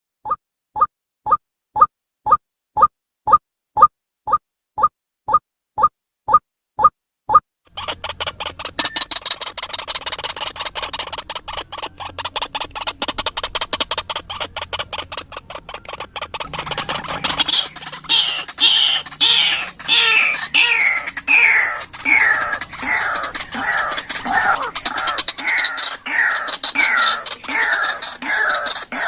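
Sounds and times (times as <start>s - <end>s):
clicking bird pulses: 7.7s - 29.0s
harsh bird calls falling in pitch: 7.9s - 29.0s.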